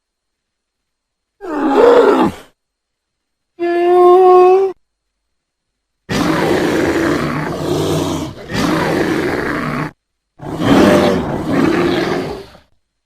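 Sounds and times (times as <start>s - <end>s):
bear roaring: 1.4s - 2.5s, 6.1s - 12.7s.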